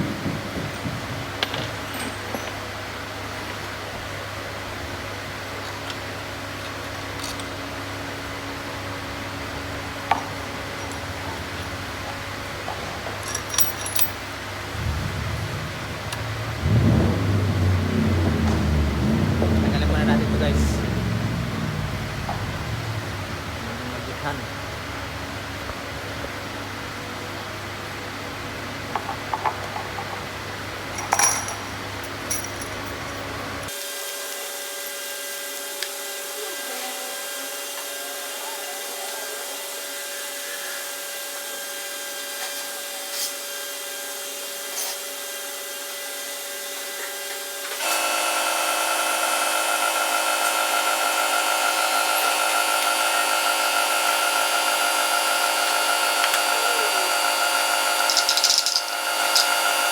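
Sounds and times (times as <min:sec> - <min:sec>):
steady machine hum: 0:00.0 - 0:28.9, 0:47.8 - 0:59.9.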